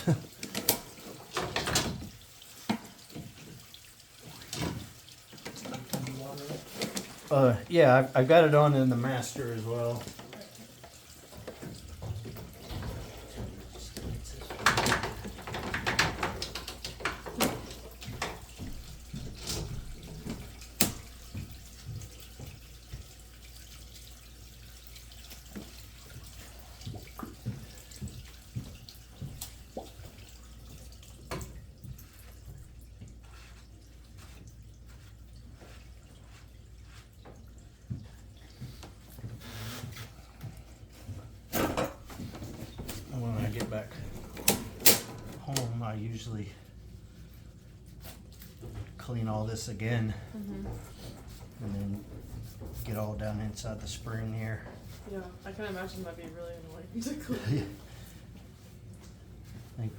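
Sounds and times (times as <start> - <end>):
water running from a faucet: 0.0 - 59.9
scattered knocks and clatter: 11.3 - 22.6.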